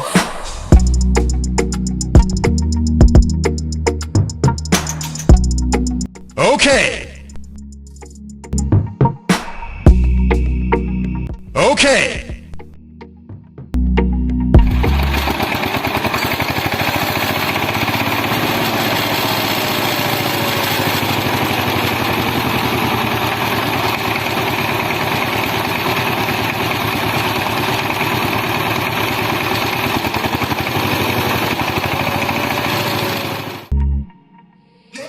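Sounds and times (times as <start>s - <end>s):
small motor chattering: 14.8s - 33.7s.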